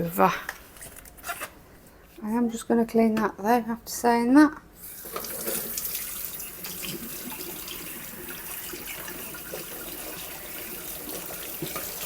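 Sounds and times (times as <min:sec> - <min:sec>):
tap water splashing into sink: 0:05.0 - 0:12.0.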